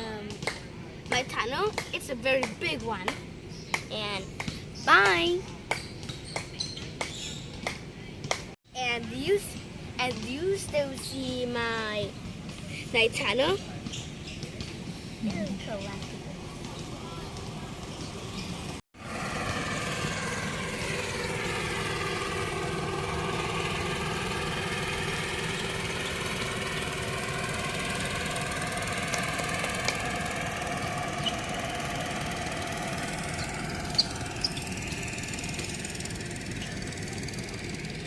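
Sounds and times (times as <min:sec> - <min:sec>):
engine running steadily: 0:14.4 - 0:38.0.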